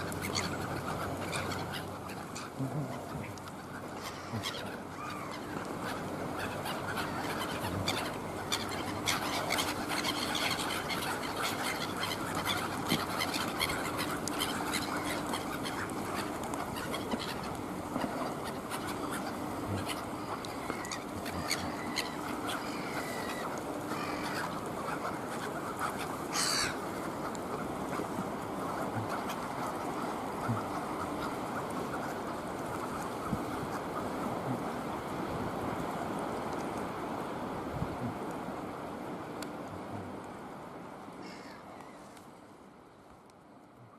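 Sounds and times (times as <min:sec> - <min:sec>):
birds calling: 0:00.0 - 0:34.4.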